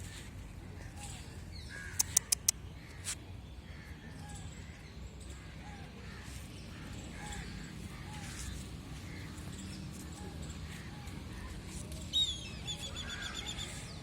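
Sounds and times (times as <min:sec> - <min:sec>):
sharp clicks: 0:01.9 - 0:02.6.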